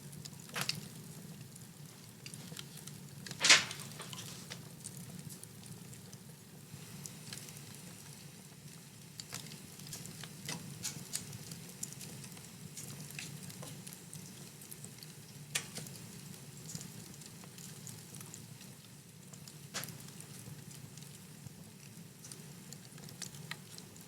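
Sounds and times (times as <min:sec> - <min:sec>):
low rumble of fire: 0:00.0 - 0:24.0
wood fire crackling: 0:00.0 - 0:24.0
fire pops: 0:02.2 - 0:05.6, 0:15.5 - 0:16.0.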